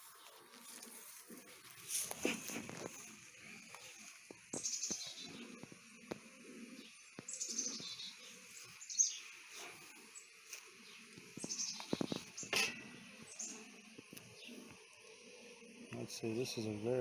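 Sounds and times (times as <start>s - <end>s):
bees buzzing: 0.0s - 17.0s
bird chirping: 3.0s - 14.8s.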